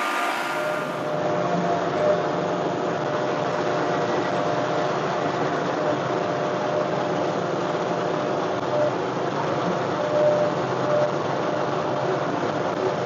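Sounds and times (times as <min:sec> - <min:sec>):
faint whine: 0:00.0 - 0:02.4.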